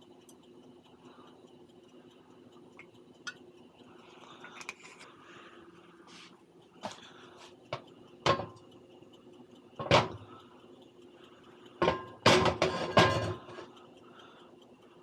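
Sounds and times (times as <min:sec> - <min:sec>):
kitchen knocks and clatters: 0:08.3 - 0:08.6, 0:09.8 - 0:10.2, 0:11.8 - 0:13.6.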